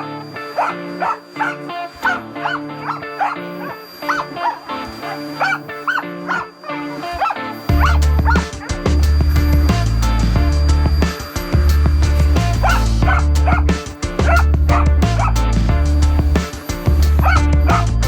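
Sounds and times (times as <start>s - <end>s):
dog barking: 0.0s - 4.6s, 5.4s - 7.9s, 12.6s - 15.3s
background music: 0.0s - 18.0s.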